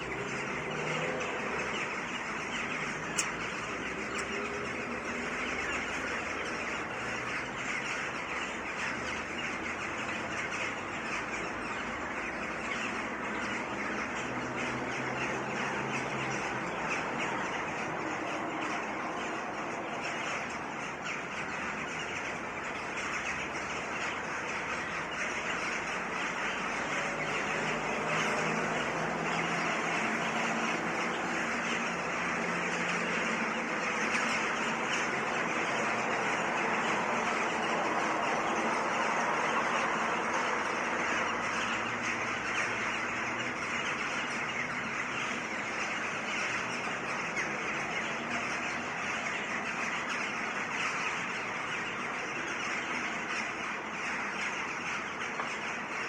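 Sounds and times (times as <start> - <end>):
birds calling: 0.0 - 56.0
road traffic noise: 0.0 - 56.0.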